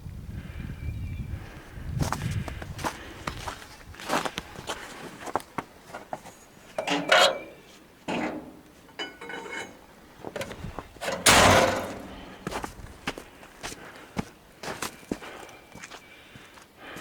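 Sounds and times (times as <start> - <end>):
knocks and scrapes: 6.0 - 12.7.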